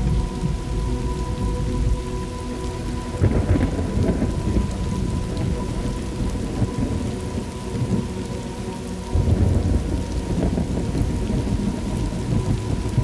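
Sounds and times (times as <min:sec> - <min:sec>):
thunder clap: 0:00.0 - 0:02.2, 0:03.2 - 0:08.1, 0:09.1 - 0:13.0
rolling thunder: 0:00.0 - 0:08.3, 0:09.1 - 0:13.0
steady rain: 0:00.0 - 0:13.0.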